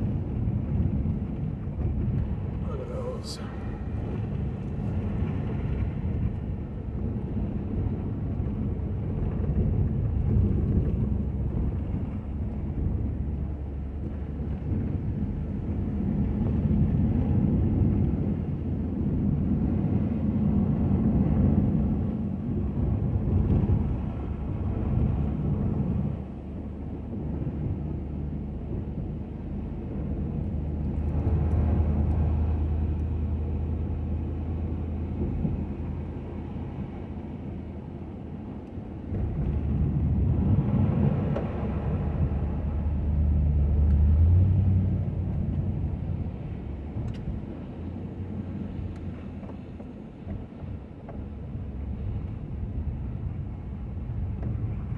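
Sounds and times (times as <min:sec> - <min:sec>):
truck engine and road rumble: 0:00.0 - 0:54.9.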